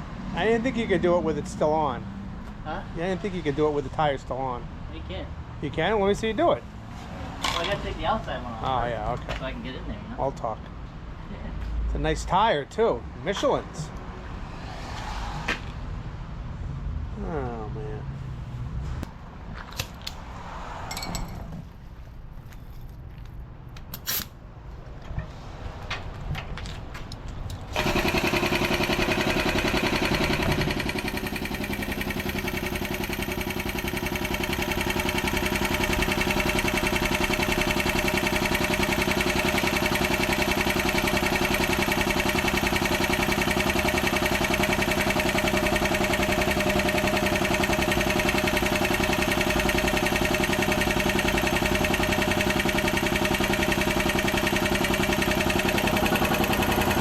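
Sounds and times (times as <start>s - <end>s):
engine running steadily: 27.6s - 57.0s.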